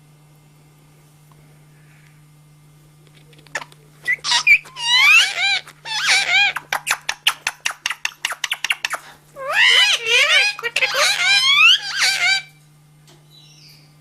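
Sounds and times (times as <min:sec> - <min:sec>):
parrot squawking calls: 0:04.1 - 0:12.6.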